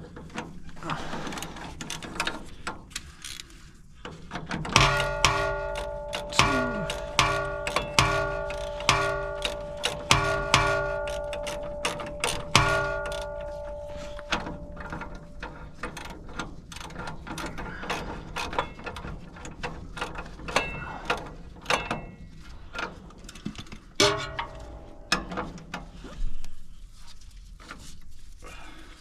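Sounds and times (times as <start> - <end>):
hand tools clicking on metal: 0.3 - 25.9
ringing metallic clang: 4.7 - 16.0, 20.6 - 21.0, 21.7 - 22.3, 24.0 - 25.7.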